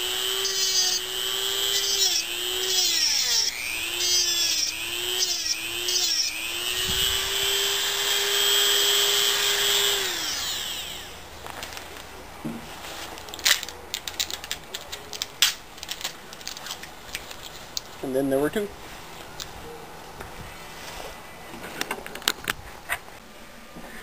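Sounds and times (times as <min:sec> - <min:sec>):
power tool cutting: 0:00.0 - 0:11.2.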